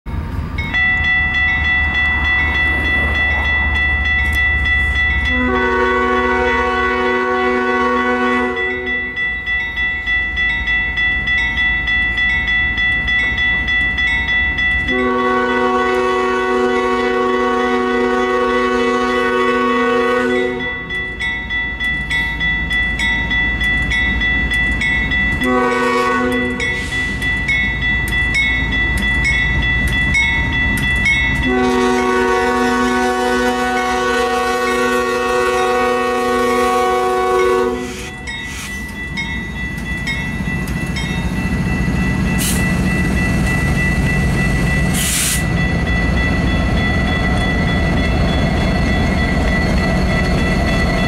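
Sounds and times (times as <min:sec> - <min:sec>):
locomotive air horn: 0:05.3 - 0:09.1, 0:14.9 - 0:20.8, 0:25.4 - 0:26.9, 0:31.4 - 0:38.7
high pulsing ringing: 0:20.2 - 0:51.0.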